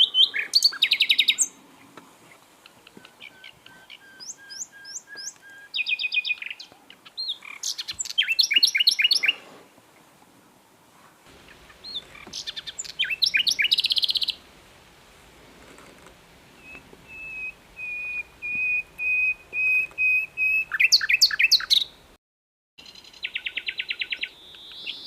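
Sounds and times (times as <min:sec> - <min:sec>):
nightingale singing: 0:00.0 - 0:01.9, 0:02.6 - 0:09.4, 0:11.3 - 0:14.5, 0:16.5 - 0:22.1, 0:22.8 - 0:25.0.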